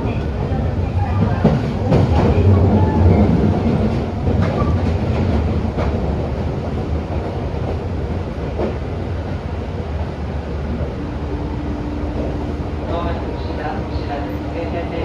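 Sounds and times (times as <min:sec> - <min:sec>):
rail-joint clicks: 0:00.0 - 0:11.0
train wheels rumbling on track: 0:00.0 - 0:15.0.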